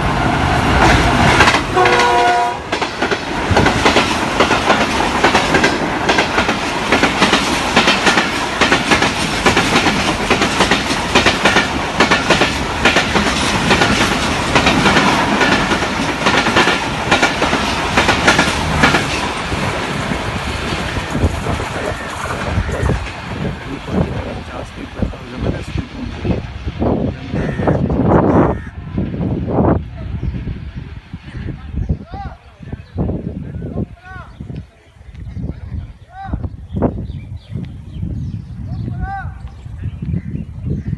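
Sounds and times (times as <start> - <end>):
diesel locomotive passing at speed: 0.0 - 32.0
train horn blast: 1.7 - 2.7.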